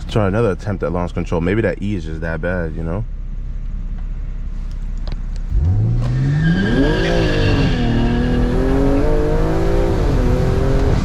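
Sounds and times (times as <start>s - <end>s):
car engine revving at full throttle: 5.4s - 11.0s.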